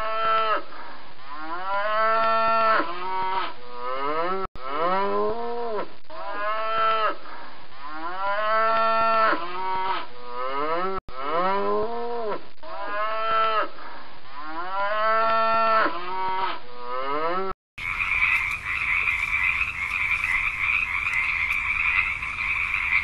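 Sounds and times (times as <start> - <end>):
cow mooing: 6.2 - 7.2, 7.9 - 11.9, 12.7 - 13.7, 14.4 - 23.0
chorus of croaking frogs: 17.8 - 23.0.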